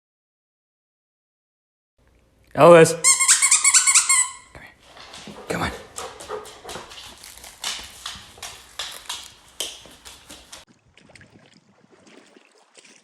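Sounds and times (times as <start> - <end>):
dog claws clicking on hard floor: 3.2 - 10.6.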